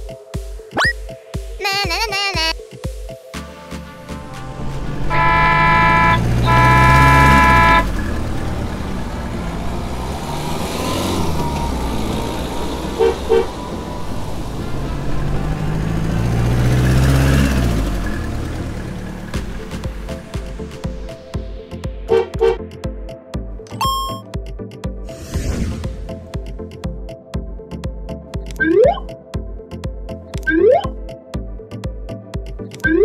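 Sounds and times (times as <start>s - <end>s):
vehicle engine passing: 4.0s - 21.0s
car horn honking: 4.8s - 8.3s, 12.8s - 13.8s, 22.1s - 22.6s
short double beep: 23.7s - 24.3s.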